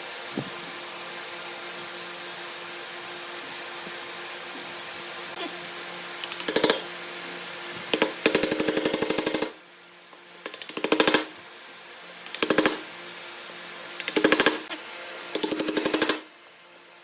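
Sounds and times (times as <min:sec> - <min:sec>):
steady hum: 0:00.0 - 0:17.0
power tool hammering clicks: 0:06.2 - 0:06.9, 0:12.3 - 0:12.9, 0:14.0 - 0:14.7.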